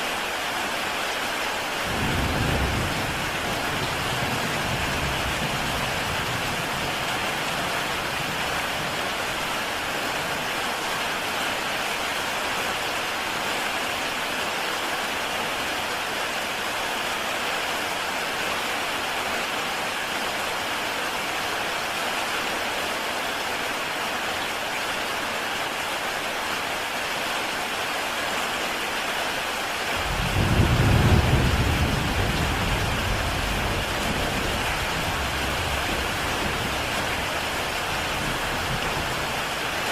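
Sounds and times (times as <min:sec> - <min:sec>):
heavy rain on a tile roof: 0:00.0 - 0:39.9
low rumble of thunder: 0:01.9 - 0:09.1, 0:30.0 - 0:39.9.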